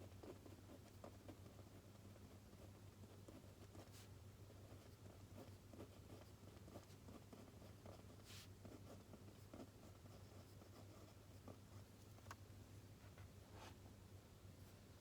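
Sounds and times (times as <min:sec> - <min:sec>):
pen scratching on paper: 0:00.0 - 0:11.8
low steady hum: 0:00.0 - 0:15.0.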